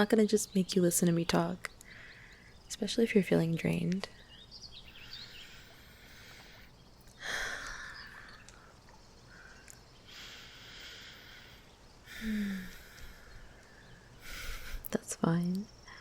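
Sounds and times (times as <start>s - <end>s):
birds chirping softly: 0.0s - 16.0s.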